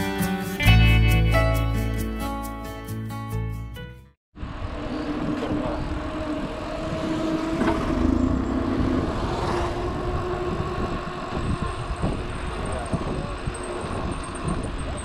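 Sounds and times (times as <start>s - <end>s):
vehicle engine droning: 4.4s - 15.0s
wind on microphone: 4.4s - 15.0s.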